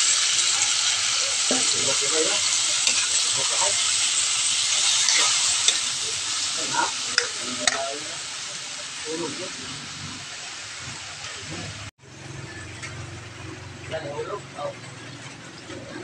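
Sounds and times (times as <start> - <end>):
metal spatula stirring: 0.0 - 7.9
food sizzling in a pan: 0.0 - 16.0.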